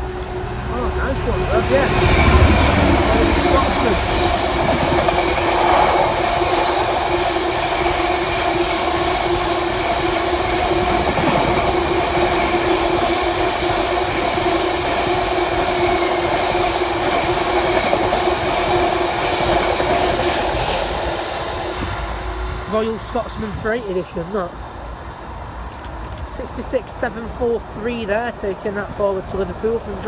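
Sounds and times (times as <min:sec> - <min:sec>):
freight train rumbling: 0:00.0 - 0:30.0
train wheels whining: 0:00.0 - 0:30.0.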